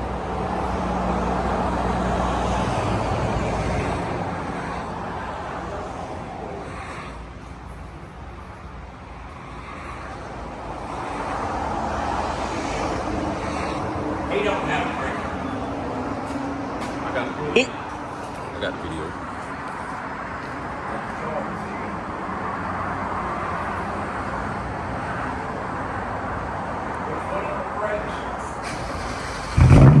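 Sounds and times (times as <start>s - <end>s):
car exhaust low drone: 28.7s - 30.0s.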